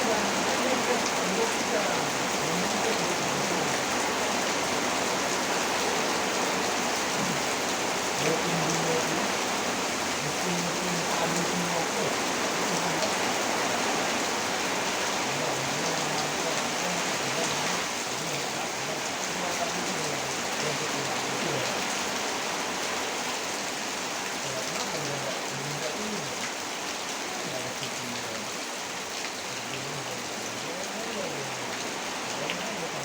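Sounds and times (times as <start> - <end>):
heavy rain pouring: 0.0 - 33.0.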